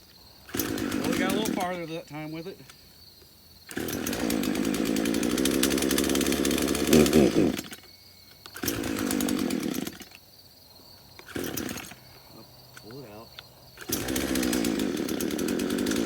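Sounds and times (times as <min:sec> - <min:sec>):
chainsaw engine running and revving: 0:00.5 - 0:01.9, 0:03.7 - 0:07.8, 0:08.6 - 0:10.0, 0:11.2 - 0:12.0, 0:13.8 - 0:16.0.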